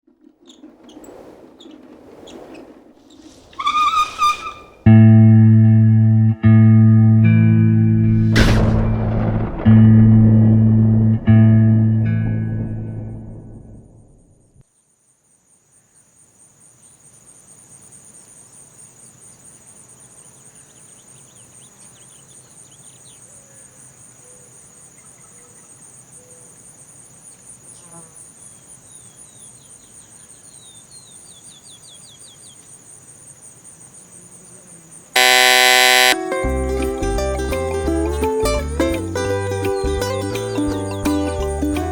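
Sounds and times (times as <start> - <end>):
crickets chirring: 14.0 - 36.2.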